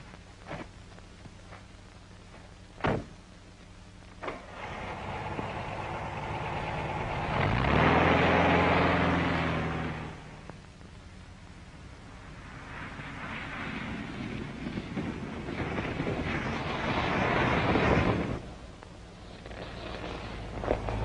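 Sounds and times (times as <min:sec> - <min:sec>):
car engine starting and running: 0:04.2 - 0:13.0.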